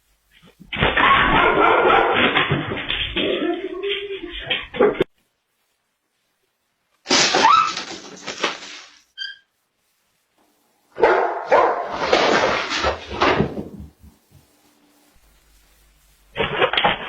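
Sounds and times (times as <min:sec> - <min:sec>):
dog barking loudly: 0:01.0 - 0:03.4, 0:11.0 - 0:12.4.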